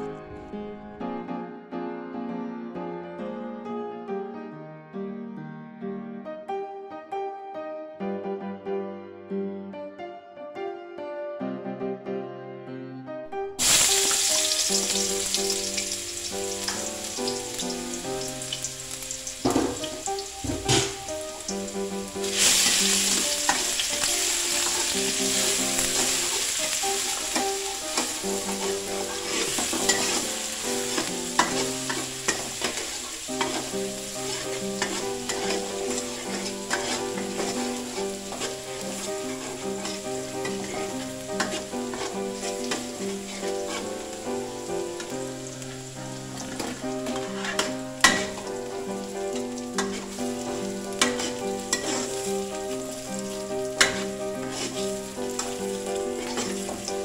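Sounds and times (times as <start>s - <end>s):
garlic sizzling in hot oil: 13.6s - 57.0s
spatula scraping a wok: 22.3s - 44.2s, 46.3s - 48.4s, 49.4s - 53.0s, 53.7s - 57.0s.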